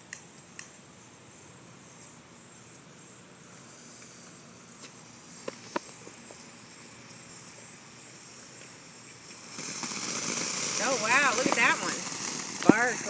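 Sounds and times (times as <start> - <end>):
night insects chirring: 0.4 - 13.0
firework fountain hissing: 3.4 - 13.0.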